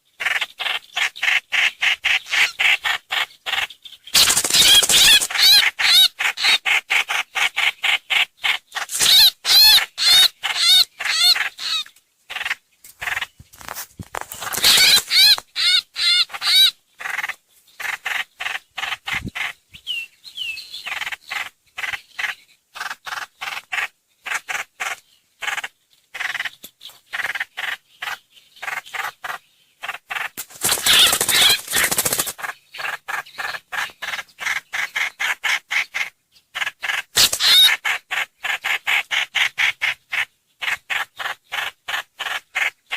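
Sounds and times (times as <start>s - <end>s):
bird song whistled notes: 19.2s - 21.0s.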